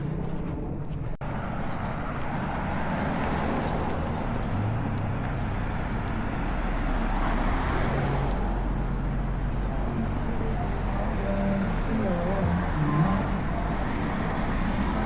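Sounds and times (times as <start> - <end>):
road traffic hum: 0.0 - 15.0.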